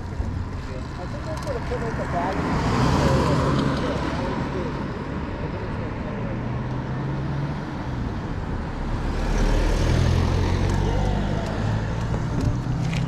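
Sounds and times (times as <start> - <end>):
vehicle passing by: 1.3 - 4.9, 6.2 - 13.0.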